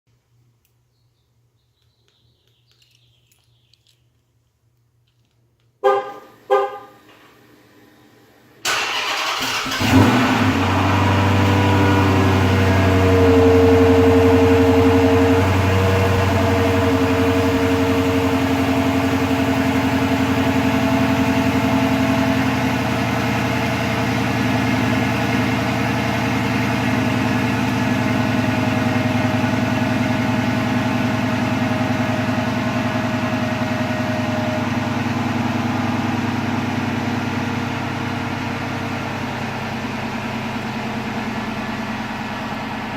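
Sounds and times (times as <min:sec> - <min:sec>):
car horn chirps: 0:05.8 - 0:07.1
car engine starting and idling: 0:08.6 - 0:42.9.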